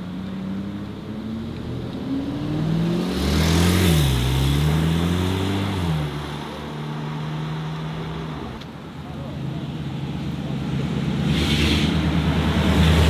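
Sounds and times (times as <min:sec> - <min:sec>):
car engine revving: 0:00.1 - 0:08.6, 0:09.4 - 0:13.0.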